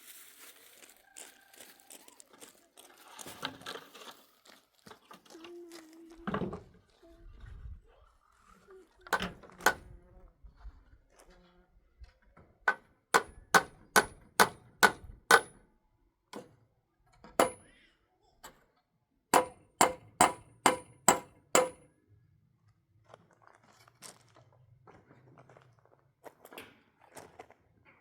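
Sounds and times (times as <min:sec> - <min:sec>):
hammer striking metal: 0:12.7 - 0:15.6, 0:17.4 - 0:17.7, 0:19.4 - 0:21.8.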